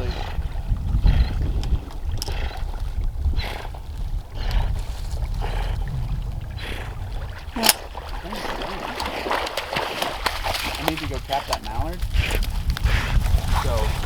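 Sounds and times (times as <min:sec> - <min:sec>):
wind buffeting microphone: 0:00.0 - 0:14.0
water splashing: 0:05.0 - 0:14.0.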